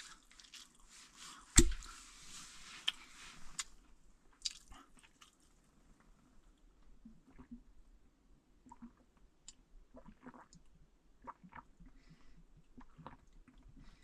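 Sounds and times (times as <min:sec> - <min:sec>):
person chewing: 0:00.1 - 0:00.8, 0:02.8 - 0:05.4.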